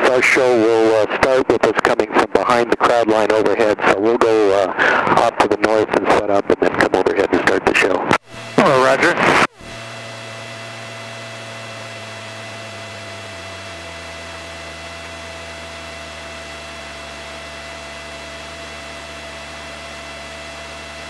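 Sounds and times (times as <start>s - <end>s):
intercom hiss and hum: 4.6s - 9.8s
aircraft engine drone: 8.2s - 21.0s.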